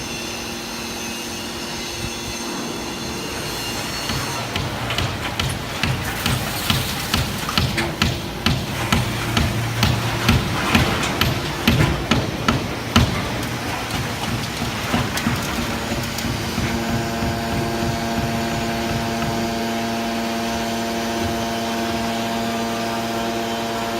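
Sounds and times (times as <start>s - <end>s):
machine humming and whining: 0.0s - 23.9s
baler knocking and clattering: 4.1s - 22.6s.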